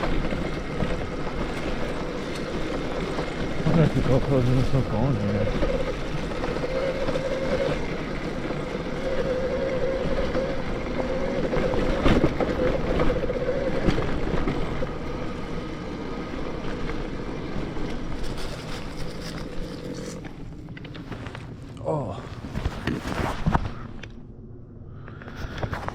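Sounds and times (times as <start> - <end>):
electric motor whining: 0.0 - 18.2
wind and tyre noise: 0.0 - 25.9.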